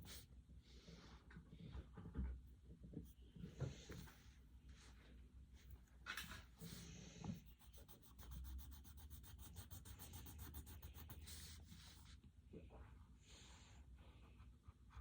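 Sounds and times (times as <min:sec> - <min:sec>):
pencil scribbling on paper: 0:06.7 - 0:12.2.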